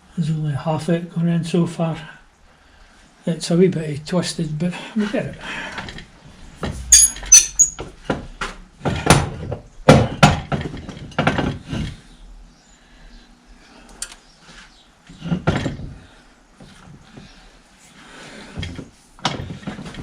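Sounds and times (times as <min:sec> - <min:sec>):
tools knocking on metal parts: 0:06.6 - 0:08.2.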